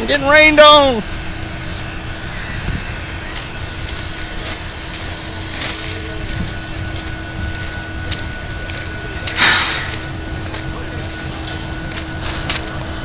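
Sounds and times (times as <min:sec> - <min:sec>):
steam locomotive hissing rumble: 0:00.0 - 0:13.0.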